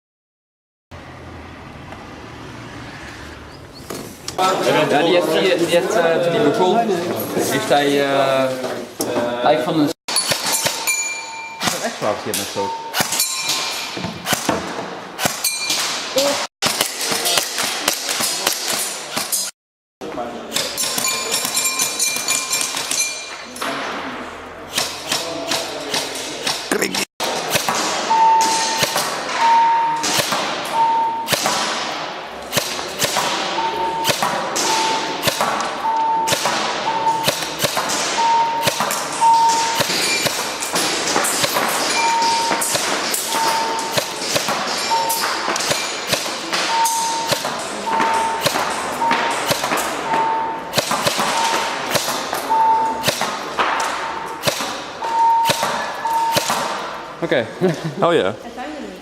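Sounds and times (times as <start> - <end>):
short ringing ping: 10.1 - 11.8
airsoft guns firing: 27.2 - 29.4, 30.0 - 54.9, 55.5 - 57.0.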